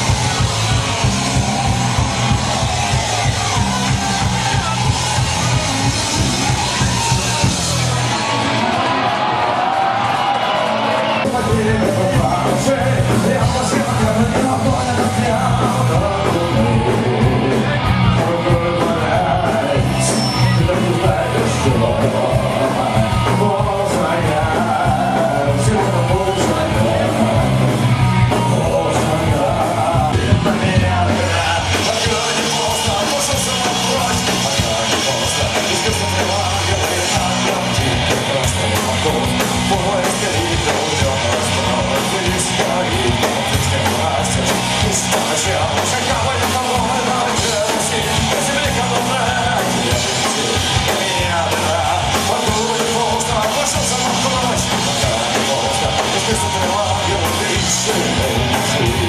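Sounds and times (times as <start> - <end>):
punk rock band playing: 0.0 - 59.0.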